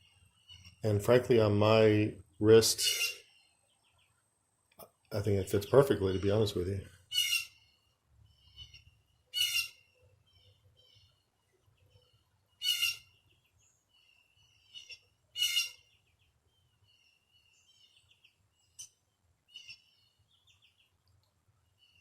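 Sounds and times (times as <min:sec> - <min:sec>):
mockingbird singing: 0:02.6 - 0:04.2, 0:05.2 - 0:21.0
harsh bird squawks: 0:02.8 - 0:03.4, 0:07.1 - 0:07.8, 0:08.4 - 0:11.2, 0:12.6 - 0:13.2, 0:14.4 - 0:16.0.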